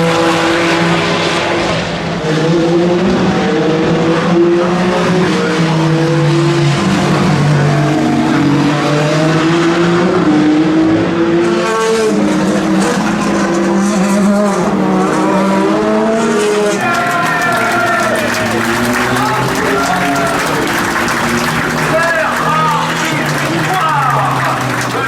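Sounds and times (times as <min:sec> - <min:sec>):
car accelerating closer: 0:00.0 - 0:25.0
race car engines at speed: 0:00.0 - 0:25.0.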